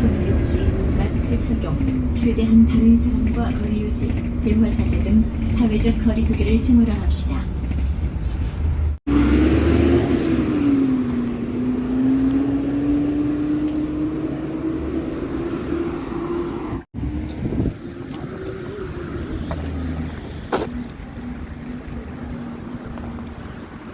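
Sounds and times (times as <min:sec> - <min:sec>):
bus engine running: 0:00.0 - 0:23.9.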